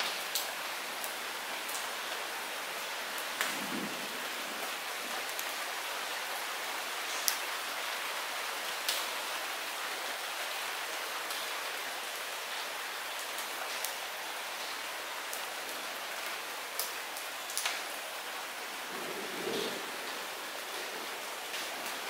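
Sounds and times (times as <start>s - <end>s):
light rain in vegetation: 0.0s - 22.0s
sharp water drips: 7.1s - 7.6s.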